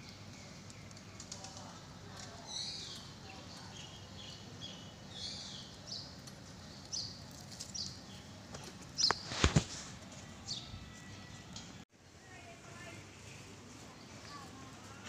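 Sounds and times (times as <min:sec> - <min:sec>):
birds chirping: 0:00.0 - 0:11.8.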